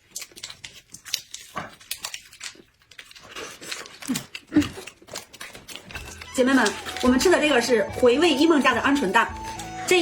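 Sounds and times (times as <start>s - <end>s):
chewing with wet mouth clicks: 0.0s - 6.9s.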